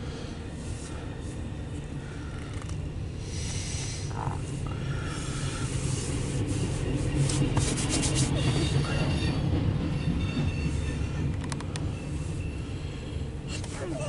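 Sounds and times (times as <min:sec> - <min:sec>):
train wheels rumbling on rail: 0:00.0 - 0:14.0
faint wheel squeal: 0:08.0 - 0:14.0.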